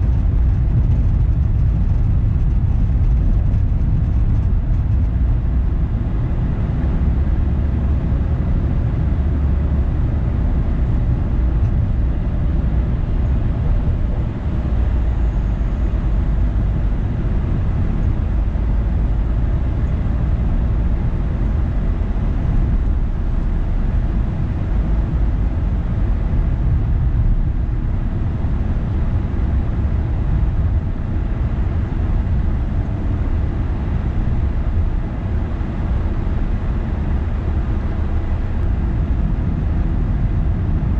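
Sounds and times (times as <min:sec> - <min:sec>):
car engine and tyres rumbling: 0:00.0 - 0:40.9.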